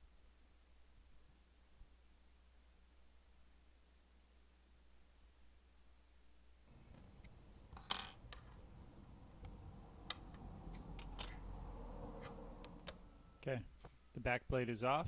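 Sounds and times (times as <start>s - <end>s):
low hum: 6.7s - 14.2s.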